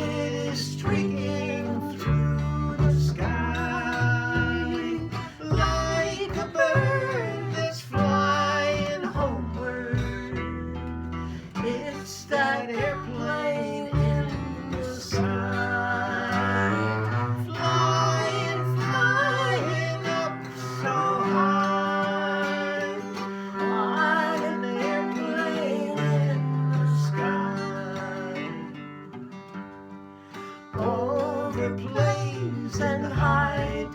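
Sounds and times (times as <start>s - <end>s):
acoustic guitar: 0.0s - 33.9s
bowed double bass: 0.0s - 33.9s.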